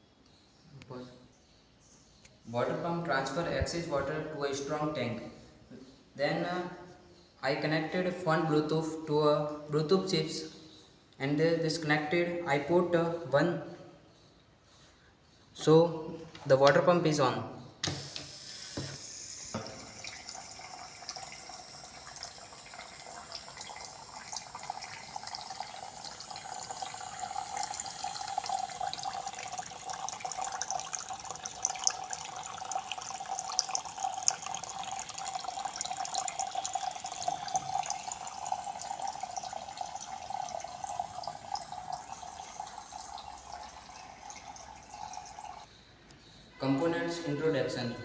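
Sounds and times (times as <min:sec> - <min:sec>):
water pump whining: 0:17.8 - 0:45.6
water splashing into a tank: 0:17.9 - 0:45.7.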